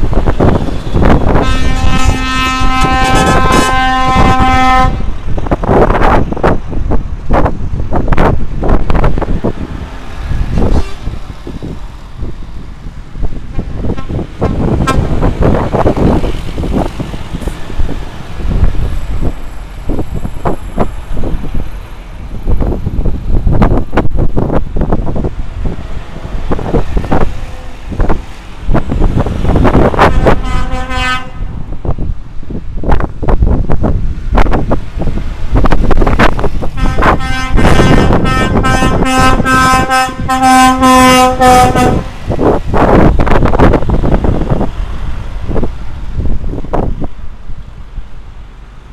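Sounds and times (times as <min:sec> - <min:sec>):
trucks driving past: 0:00.0 - 0:48.9
wind noise: 0:00.0 - 0:48.9
truck horn toot: 0:01.3 - 0:05.2, 0:10.6 - 0:11.2, 0:14.8 - 0:15.2, 0:30.0 - 0:31.6, 0:36.8 - 0:42.2.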